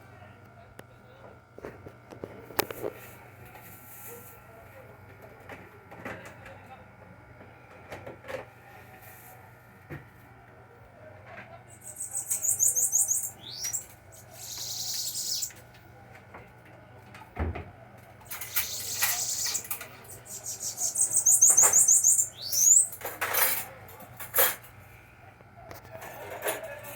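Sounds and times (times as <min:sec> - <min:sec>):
bird singing buzzy trills: 0:11.7 - 0:15.6, 0:18.2 - 0:23.1
short high bird calls: 0:11.7 - 0:15.6, 0:18.3 - 0:22.9.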